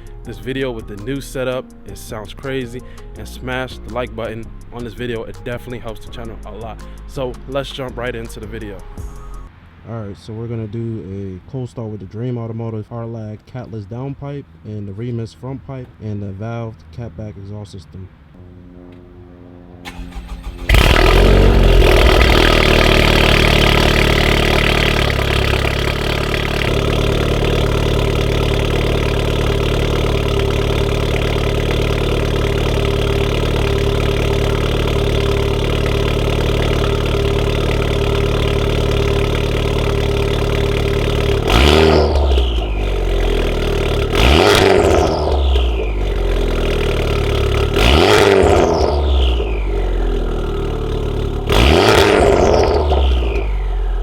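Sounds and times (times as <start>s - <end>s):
car engine cold start and idle: 0.0s - 11.2s, 19.8s - 54.0s
engine revving: 18.4s - 54.0s.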